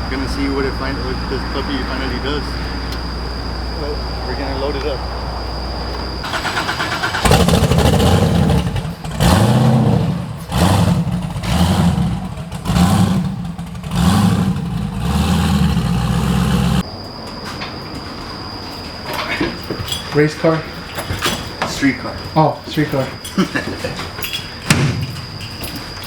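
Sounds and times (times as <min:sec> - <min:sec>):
car engine cranking: 0:05.8 - 0:16.8
car engine revving: 0:06.2 - 0:16.8.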